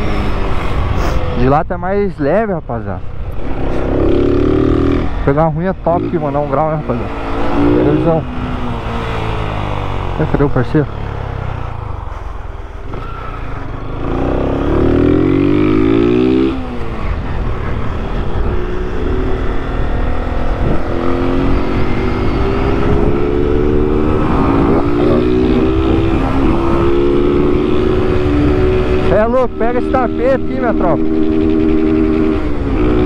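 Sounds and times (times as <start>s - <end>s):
motorcycle engine revving: 0.0s - 1.4s, 3.1s - 33.0s
wind buffeting microphone: 15.3s - 29.2s.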